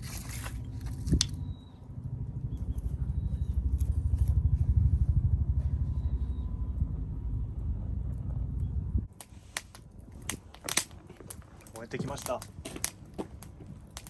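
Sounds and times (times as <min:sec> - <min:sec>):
low pulsing engine rumble: 0:00.0 - 0:09.1.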